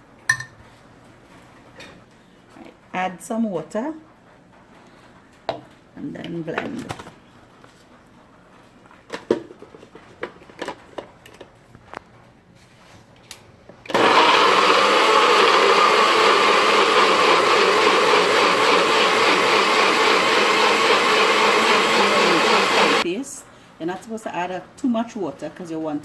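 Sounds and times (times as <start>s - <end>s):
blender motor running: 13.9s - 23.0s.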